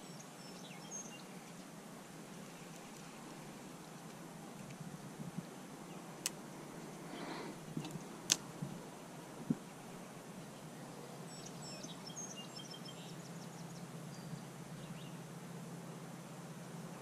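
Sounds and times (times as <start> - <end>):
small bird chirps: 0.0 - 1.7, 10.0 - 15.2
steady low hum: 0.0 - 17.0.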